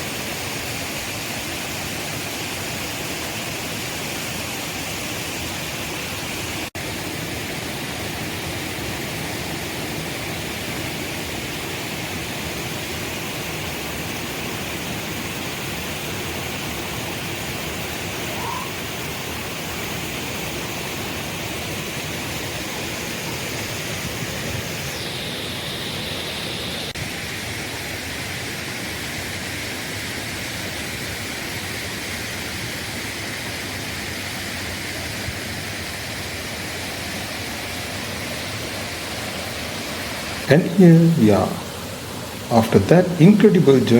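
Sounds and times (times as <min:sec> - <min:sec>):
waterfall rushing: 0:34.2 - 0:43.9.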